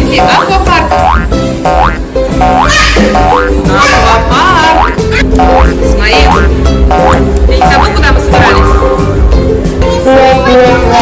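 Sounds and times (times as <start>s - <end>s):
upward-swooping notes: 0.0s - 9.1s
playful background music: 0.0s - 11.0s.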